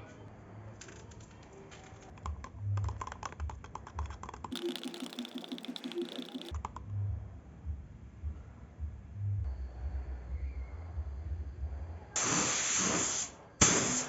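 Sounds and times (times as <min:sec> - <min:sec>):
rapid light clicks and taps: 0:00.8 - 0:06.9
rapidly repeating rattle: 0:01.9 - 0:06.9.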